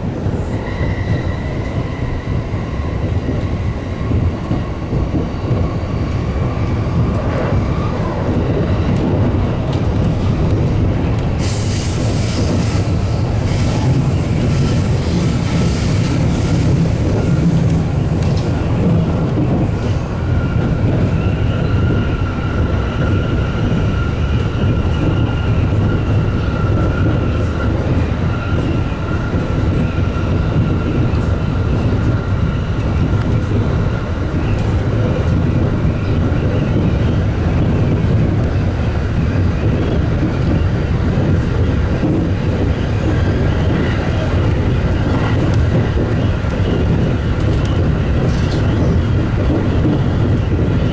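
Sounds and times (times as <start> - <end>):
electric train whine: 0.0 - 50.9
train wheels rumbling on rail: 0.0 - 50.9.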